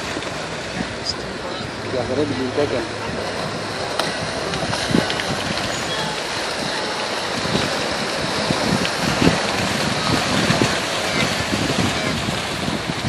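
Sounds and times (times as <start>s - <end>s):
animals splashing in water: 0.0s - 13.0s
river water rushing: 0.0s - 13.0s.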